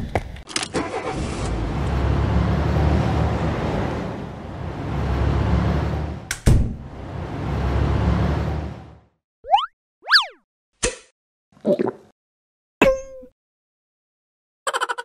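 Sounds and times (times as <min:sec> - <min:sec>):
car engines driving by: 0:00.9 - 0:09.2.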